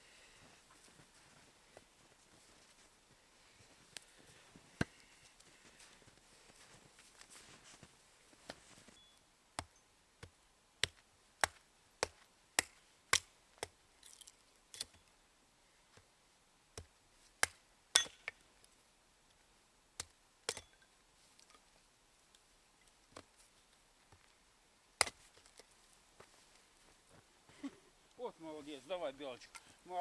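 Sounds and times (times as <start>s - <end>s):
axe chopping wood: 25.0s - 25.2s.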